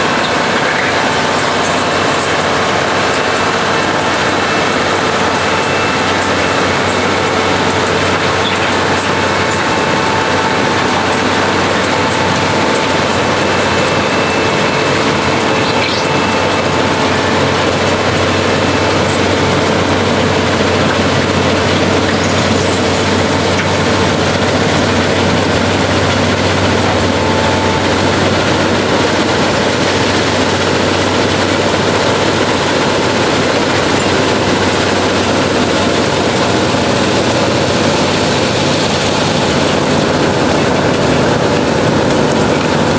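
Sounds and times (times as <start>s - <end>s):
ballast cleaner machine din: 0.0s - 42.9s.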